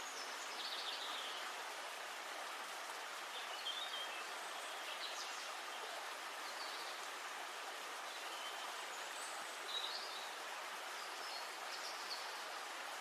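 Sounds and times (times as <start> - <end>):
river forest ambience hiss: 0.0 - 13.0.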